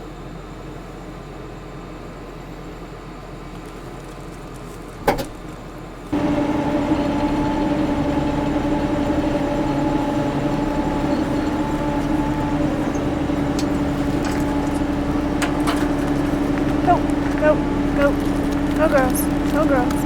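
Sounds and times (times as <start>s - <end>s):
tractor engine running: 6.1s - 20.0s.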